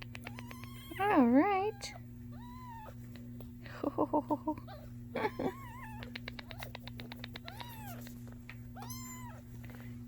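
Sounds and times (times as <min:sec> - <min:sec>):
kitten mewing: 0:00.0 - 0:03.2, 0:04.6 - 0:08.2, 0:08.8 - 0:09.5.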